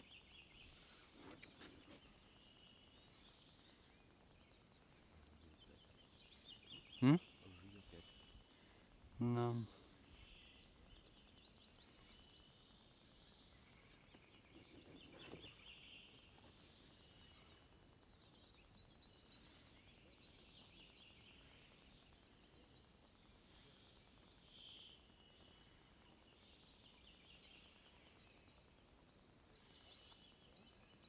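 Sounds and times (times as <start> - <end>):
distant birds chirping: 0.0 - 31.0.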